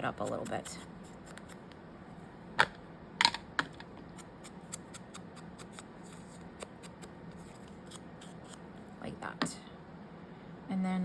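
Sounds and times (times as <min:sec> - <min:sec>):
tool scraping paper edges: 0:00.0 - 0:01.6, 0:04.2 - 0:08.6.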